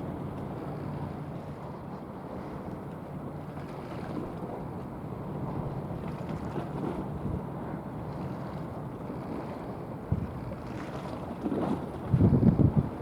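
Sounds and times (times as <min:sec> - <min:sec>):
wind buffeting microphone: 0:10.0 - 0:13.0.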